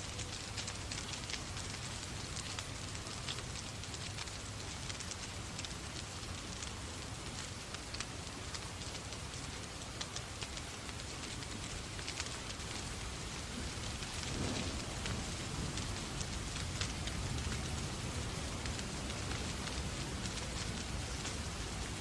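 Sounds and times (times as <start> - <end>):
steady rain falling: 0.0 - 22.0
wood fire crackling: 0.0 - 22.0.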